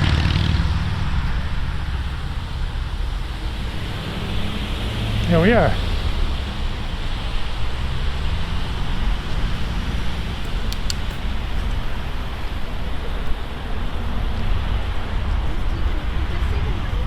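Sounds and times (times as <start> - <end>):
low engine note: 0.0 - 17.0
road traffic passing: 0.0 - 17.0
wind rushing over microphone: 0.0 - 17.0.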